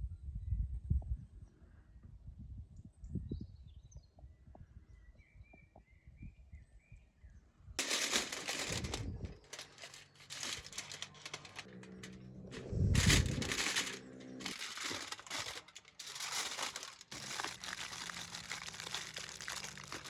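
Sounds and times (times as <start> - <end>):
aluminium foil crinkling: 7.8 - 12.2, 13.0 - 20.0.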